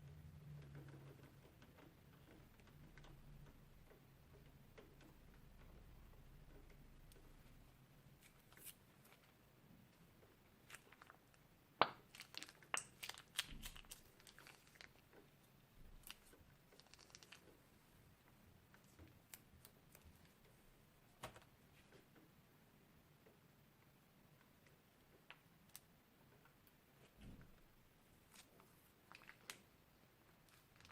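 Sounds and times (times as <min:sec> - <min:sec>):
crunchy slime crackling: 0:10.4 - 0:17.7, 0:28.2 - 0:30.9.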